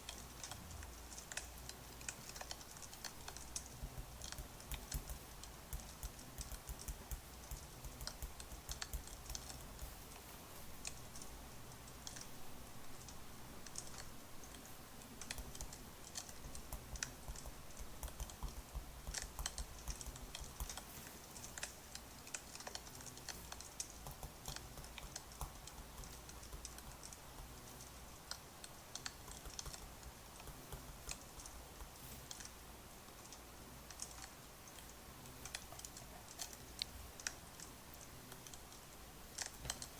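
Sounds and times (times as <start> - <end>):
light clicks and crackles: 0.0 - 39.9
low steady hum: 0.0 - 39.9.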